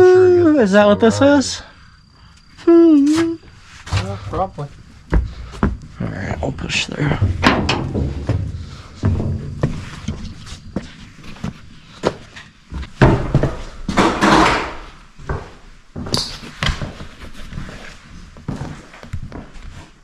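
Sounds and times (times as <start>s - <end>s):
knocks and thumps on metal: 7.2s - 9.8s.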